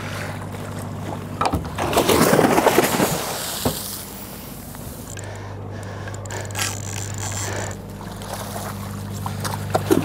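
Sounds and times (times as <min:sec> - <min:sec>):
boat engine humming: 0:00.0 - 0:10.0.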